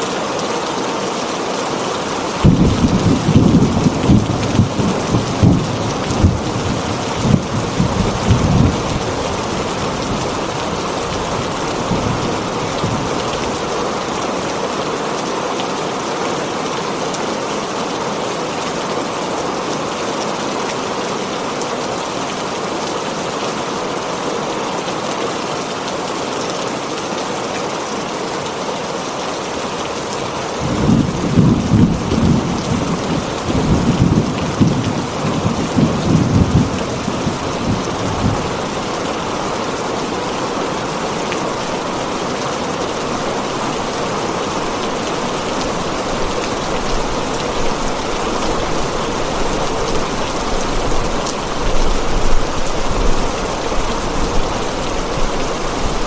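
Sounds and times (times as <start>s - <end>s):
rain on a tin roof: 0.0s - 56.0s
thunder rumbling: 2.4s - 13.6s, 30.6s - 39.4s, 44.7s - 56.0s.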